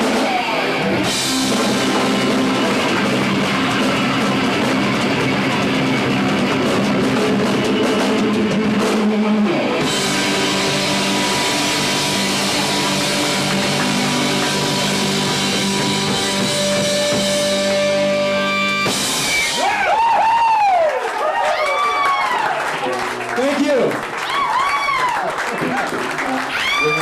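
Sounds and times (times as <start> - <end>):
rock band closing chord: 0.0 - 20.0
audience whistling and cheering: 19.3 - 22.9, 24.1 - 27.0.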